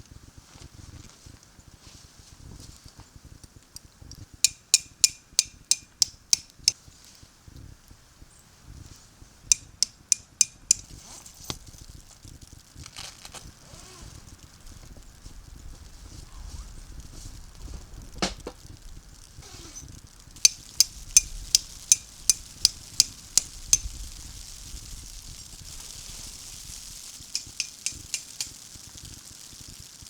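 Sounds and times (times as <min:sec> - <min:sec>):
soft hiss: 0:00.0 - 0:30.0
metal utensil clicking on cookware: 0:09.5 - 0:11.6, 0:27.4 - 0:28.6.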